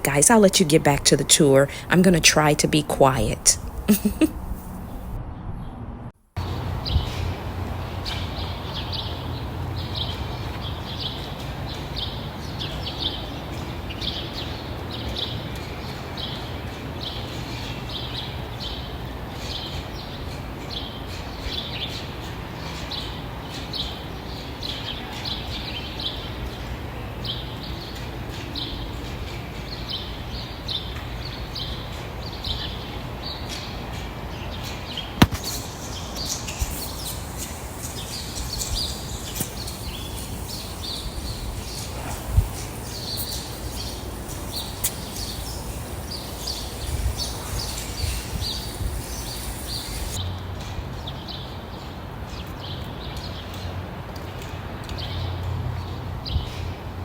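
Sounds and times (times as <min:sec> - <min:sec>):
birds chirping: 0:00.0 - 0:05.1, 0:34.4 - 0:50.2
sharp click: 0:35.2 - 0:41.0.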